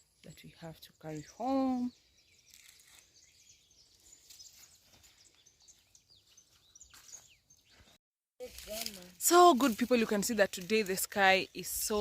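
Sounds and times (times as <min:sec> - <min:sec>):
faint high bird chirps: 0:00.2 - 0:08.0.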